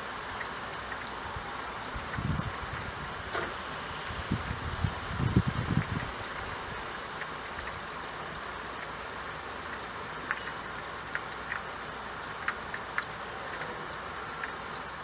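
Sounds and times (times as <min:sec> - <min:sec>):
steady rain hiss: 0:00.0 - 0:15.0
drops ticking on hard surface: 0:05.1 - 0:15.0.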